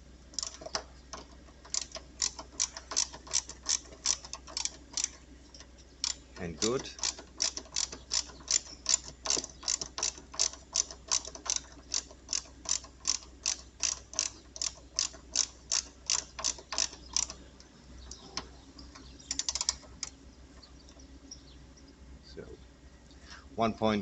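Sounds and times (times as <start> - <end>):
ratchet wrench clicking: 0.4 - 17.4, 19.3 - 20.1.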